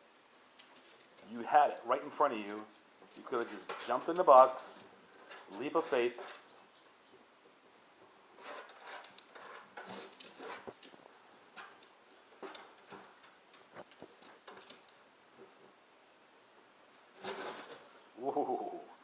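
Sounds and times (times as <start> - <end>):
dog scratching cardboard box: 8.4 - 10.9, 17.1 - 18.0.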